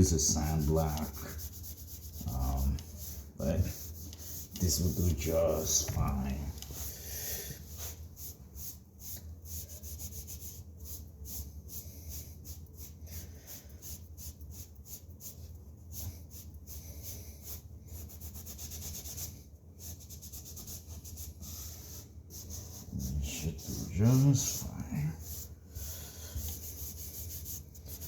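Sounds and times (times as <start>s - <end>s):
hand rubbing drywall: 0.0s - 28.0s.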